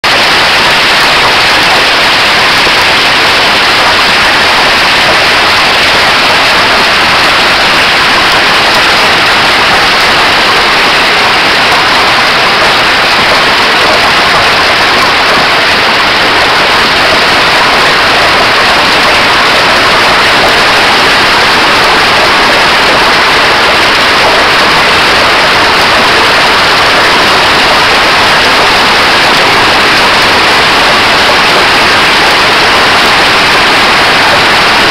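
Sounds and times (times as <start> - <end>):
hail and heavy rain pelting: 0.0 - 34.9.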